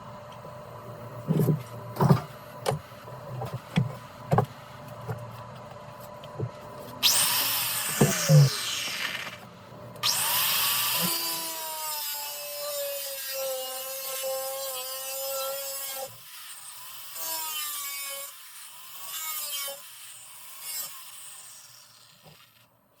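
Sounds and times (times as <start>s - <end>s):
grinder grinding metal: 7.0s - 9.4s.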